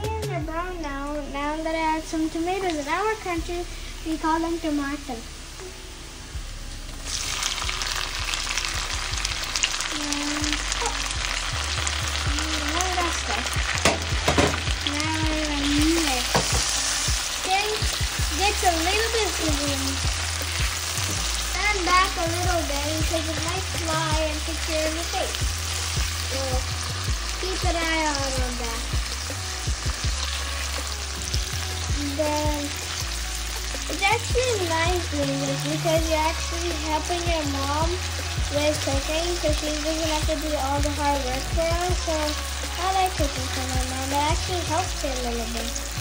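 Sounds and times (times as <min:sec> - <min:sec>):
vegetables sizzling in hot oil: 0:00.5 - 0:46.0.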